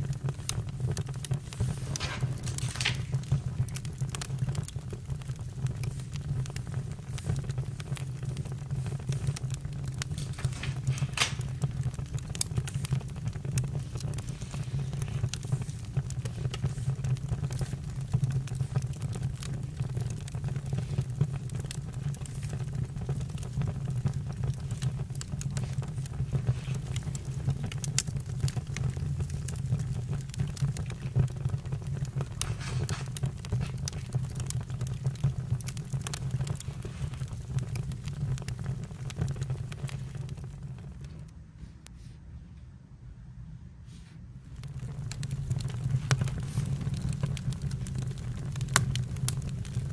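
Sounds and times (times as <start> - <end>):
campfire crackling: 0.0 - 41.4, 44.4 - 49.9.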